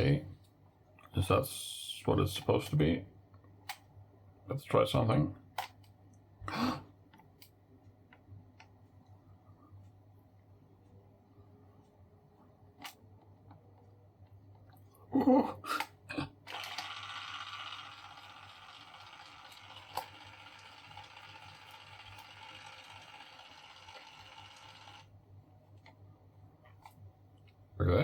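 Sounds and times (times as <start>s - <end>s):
label maker motor whirring: 16.5s - 25.1s.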